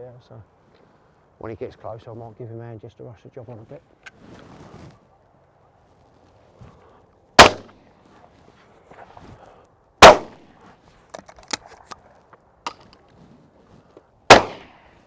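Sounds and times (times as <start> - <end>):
shotgun shots: 7.4 - 7.7, 10.0 - 10.4, 14.3 - 14.8.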